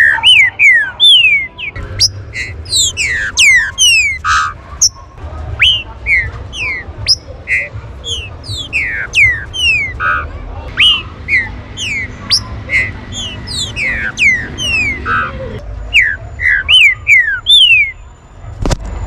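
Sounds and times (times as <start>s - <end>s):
birds whistling calls: 0.0s - 18.1s.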